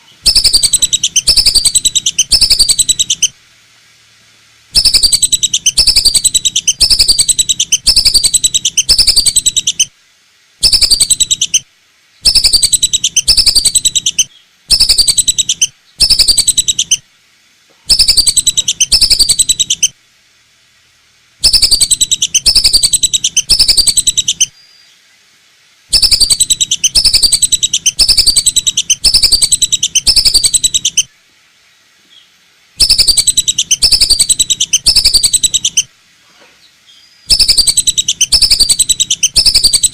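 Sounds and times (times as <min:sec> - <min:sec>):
duck lure call whistles: 0:21.4 - 0:24.5, 0:32.8 - 0:35.8, 0:37.3 - 0:39.9.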